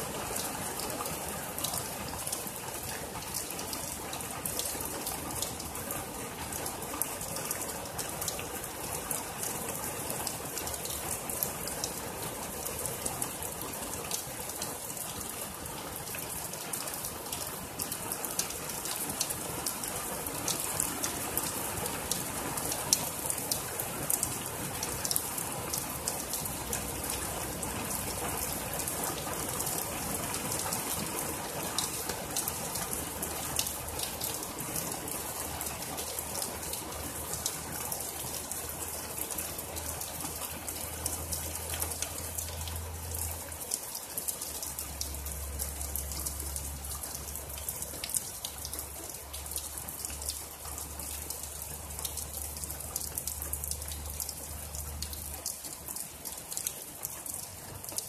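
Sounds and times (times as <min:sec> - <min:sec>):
close raindrops pattering: 0:00.0 - 0:58.0
heavy rain on trees and lawn: 0:00.0 - 0:58.0.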